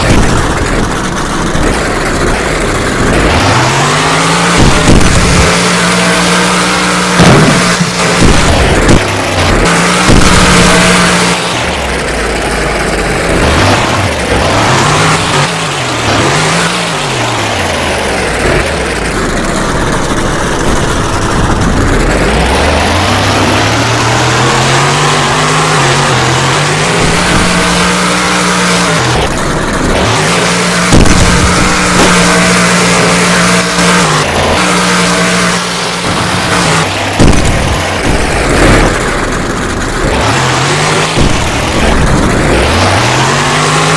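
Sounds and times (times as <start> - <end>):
monster truck engine revving: 0.0 - 43.9.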